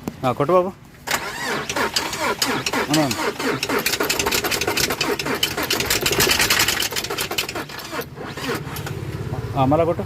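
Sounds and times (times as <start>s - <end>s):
car engine cranking with rattling clatter: 1.0s - 9.0s.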